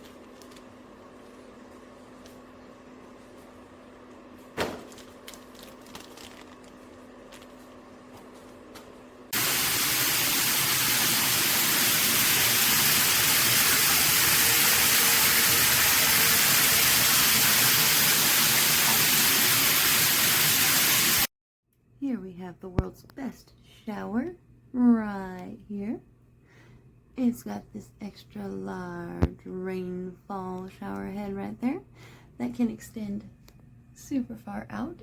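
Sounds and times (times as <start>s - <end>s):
shower water spraying: 9.4s - 21.3s.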